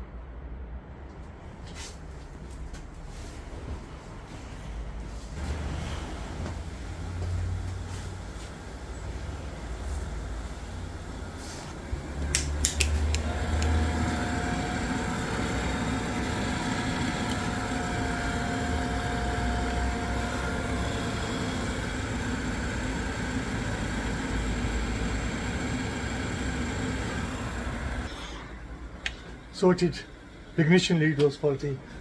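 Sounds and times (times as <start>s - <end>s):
boiler fan and burner running: 1.3s - 32.0s
boiler ignition clicks: 12.0s - 28.1s.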